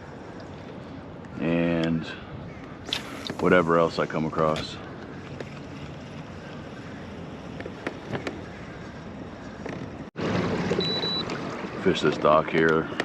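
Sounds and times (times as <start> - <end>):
wind: 0.0 - 13.0
water noise: 2.9 - 13.0.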